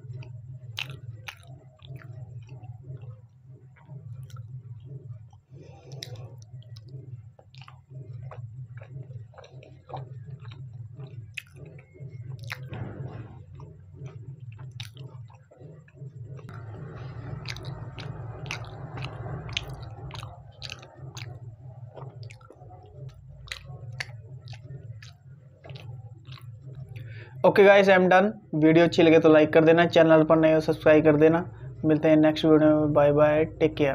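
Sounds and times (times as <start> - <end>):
wet mouth chewing: 0.0 - 27.4
low steady hum: 0.0 - 33.9.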